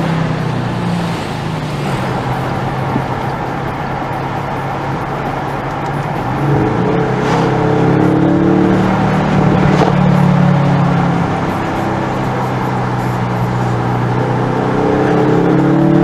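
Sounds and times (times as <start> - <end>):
car engine through sports exhaust: 0.0 - 16.0.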